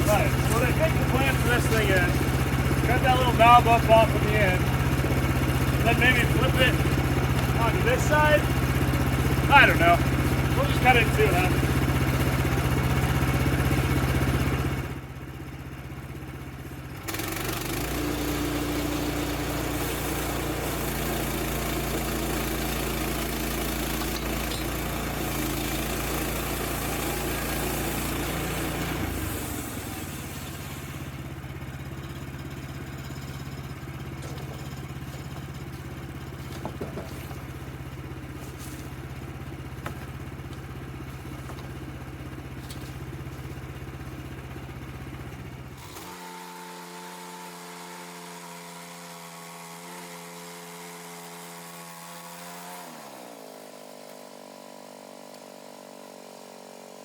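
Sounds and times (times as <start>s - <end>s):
saw blade cutting log: 0.0s - 14.3s, 17.0s - 43.7s, 45.7s - 57.0s
petrol engine running: 0.0s - 46.1s.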